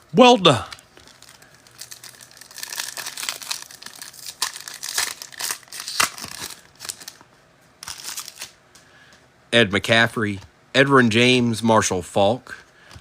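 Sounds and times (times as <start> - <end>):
foil wrapper tearing and crinkling: 1.0 - 7.2, 7.8 - 8.6.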